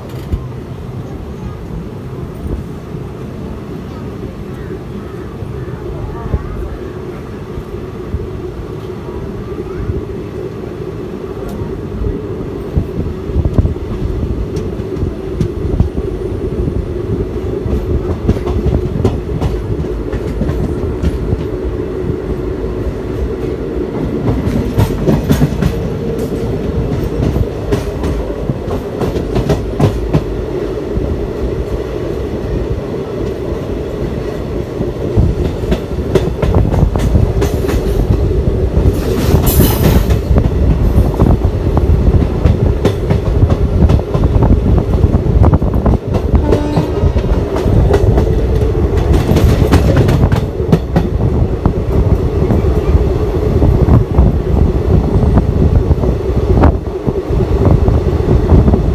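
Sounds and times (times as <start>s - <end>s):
train rumble: 0.0s - 58.9s
train wheels clattering: 17.2s - 21.8s, 22.8s - 30.8s, 33.2s - 55.1s.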